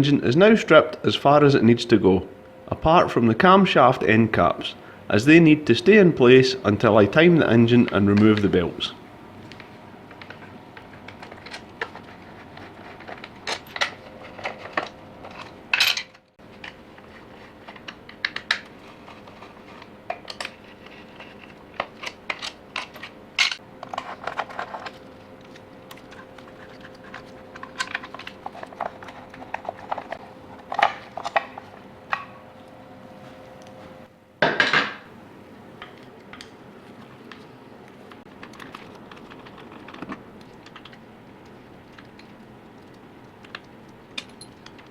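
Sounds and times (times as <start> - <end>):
metal tools clinking and tapping: 13.1 - 16.2, 44.2 - 44.8.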